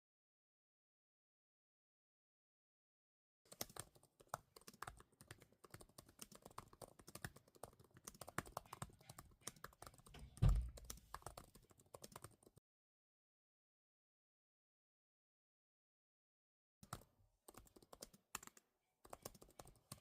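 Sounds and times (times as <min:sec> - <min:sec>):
fast typing on keyboard: 0:03.5 - 0:12.6, 0:16.8 - 0:20.0.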